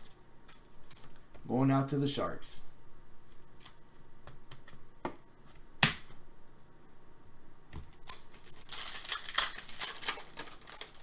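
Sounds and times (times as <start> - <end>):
crinkly packaging rustling: 7.8 - 11.0.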